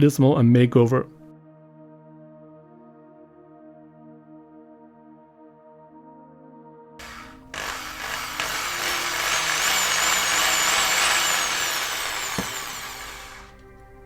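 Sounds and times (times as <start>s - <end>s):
electric drill cutting into metal: 7.0s - 13.8s.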